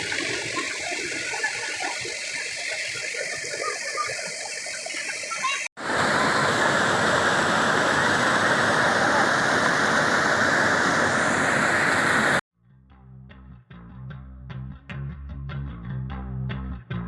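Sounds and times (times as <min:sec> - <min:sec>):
stream water rushing: 0:00.0 - 0:12.4.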